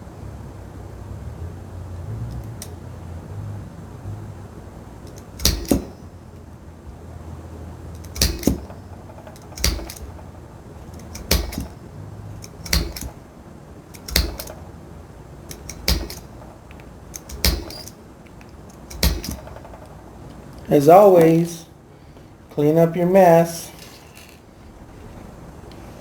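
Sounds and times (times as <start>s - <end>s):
hammer striking hole punch: 5.1s - 6.1s, 8.0s - 10.2s, 10.9s - 11.8s, 12.4s - 13.2s, 14.0s - 14.6s, 15.5s - 16.5s, 17.1s - 18.0s, 18.7s - 19.8s.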